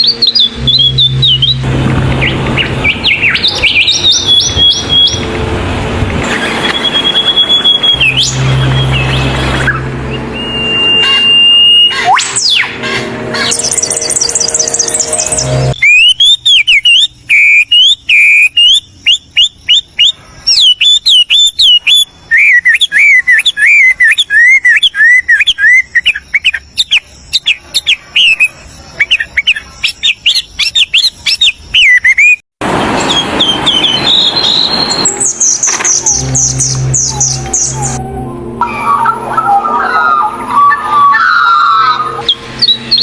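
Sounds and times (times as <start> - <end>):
songbirds chirping and trilling: 0.0 - 43.0.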